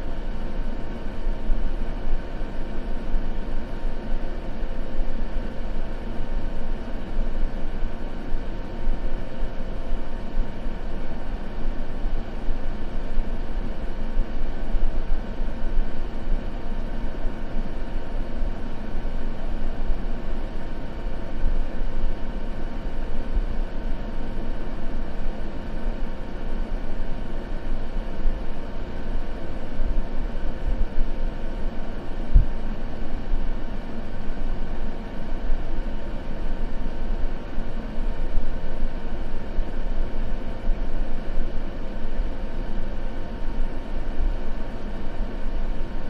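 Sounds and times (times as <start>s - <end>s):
white noise hiss: 0.0s - 46.0s.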